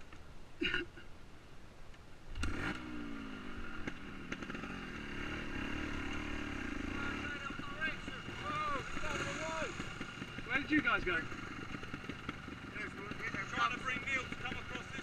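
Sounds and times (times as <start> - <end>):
motorcycle engine running: 2.4 - 15.0.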